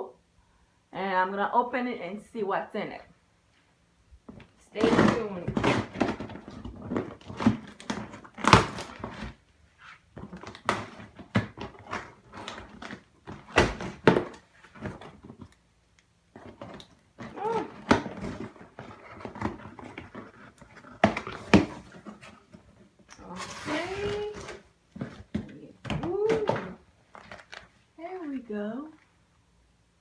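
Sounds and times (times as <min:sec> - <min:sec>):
cardboard box being handled: 0:16.3 - 0:27.7.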